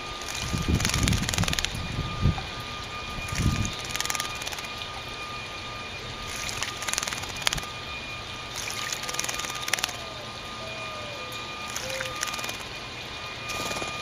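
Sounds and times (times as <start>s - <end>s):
bird splashing in water: 0.2s - 1.7s, 3.2s - 4.8s, 6.2s - 7.7s, 8.5s - 10.0s, 11.7s - 12.7s.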